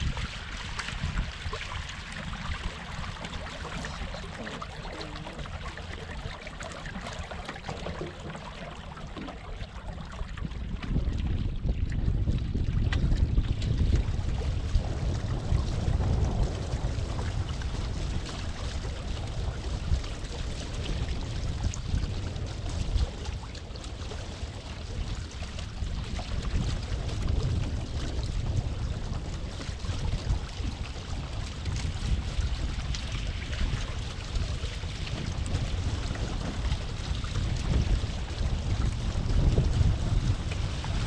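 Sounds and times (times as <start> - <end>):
water splashing along hull: 0.0 - 41.0
wind buffeting microphone: 0.0 - 41.0.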